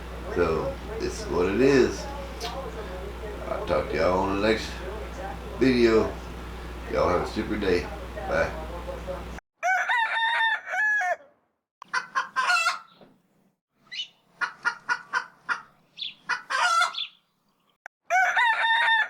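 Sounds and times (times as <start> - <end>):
rooster crowing: 9.6 - 11.4, 18.1 - 19.0
chicken clucking and cackling: 9.6 - 13.0, 14.4 - 17.1, 18.1 - 19.0.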